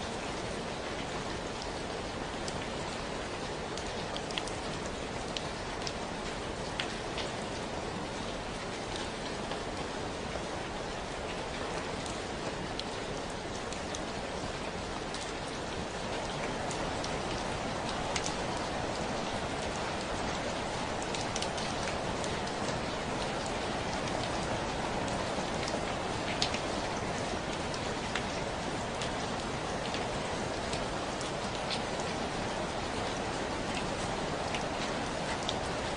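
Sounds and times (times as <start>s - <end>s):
steady rain hiss: 0.0s - 35.9s
raindrops clicking on surface: 0.2s - 35.9s.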